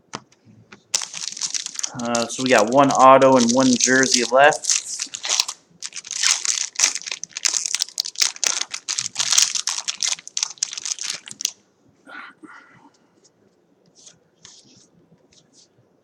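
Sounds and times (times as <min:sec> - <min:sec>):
wrapper tearing and crinkling: 0:00.9 - 0:11.6.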